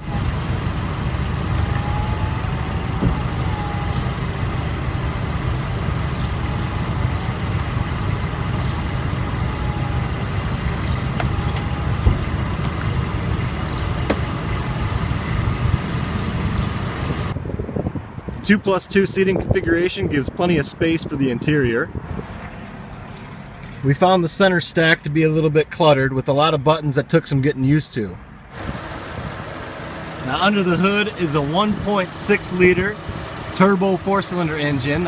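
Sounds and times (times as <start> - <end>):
electric motor whine: 0.0 - 17.3
car engine idling: 0.0 - 17.4, 28.5 - 35.0.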